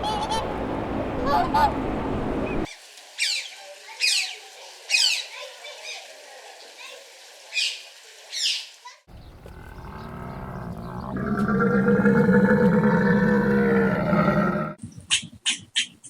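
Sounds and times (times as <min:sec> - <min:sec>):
animal deep roar: 0:09.1 - 0:14.8.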